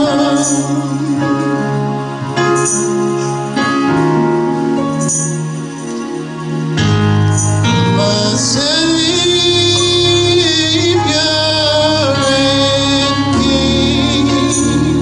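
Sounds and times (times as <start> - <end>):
person singing gospel: 0.0 - 3.6, 7.4 - 15.0
sustained instrumental chords: 0.0 - 15.0.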